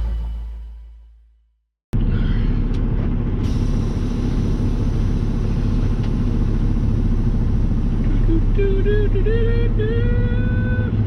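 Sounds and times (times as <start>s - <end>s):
truck engine rumble: 0.0s - 1.0s, 2.0s - 11.0s
background music: 0.0s - 1.2s.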